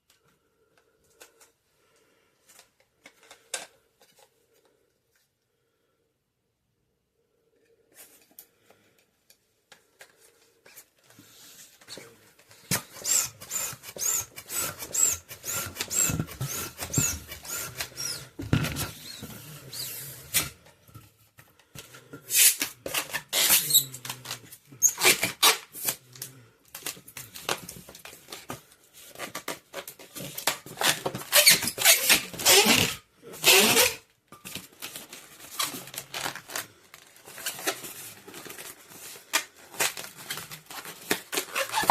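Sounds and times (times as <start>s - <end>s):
balloons squeaking and rubbing: 11.8s - 20.6s, 22.3s - 26.0s, 29.3s - 34.1s, 37.2s - 41.9s.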